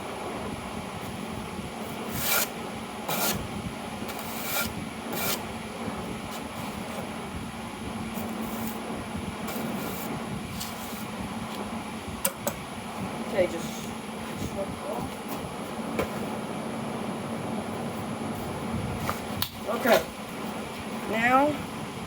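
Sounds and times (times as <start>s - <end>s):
broom sweeping workbench: 1.0s - 7.2s, 8.1s - 11.2s.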